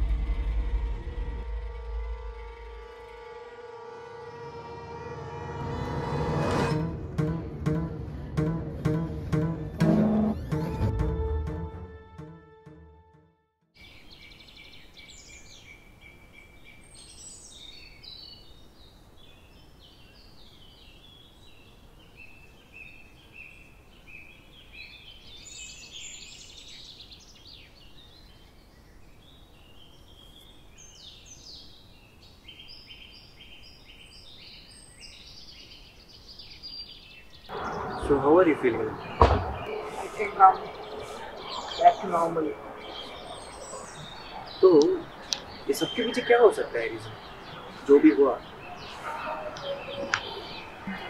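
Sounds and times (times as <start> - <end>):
birds singing chirps and trills: 13.8 - 51.0.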